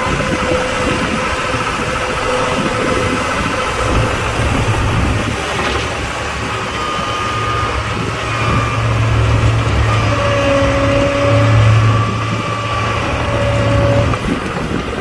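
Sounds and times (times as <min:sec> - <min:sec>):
thin whining tones: 0:00.0 - 0:14.8
heavy diesel engine running: 0:00.0 - 0:15.0.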